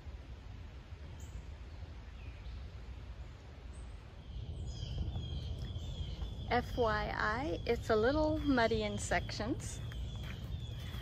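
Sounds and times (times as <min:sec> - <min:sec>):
birds calling: 0:03.4 - 0:11.0.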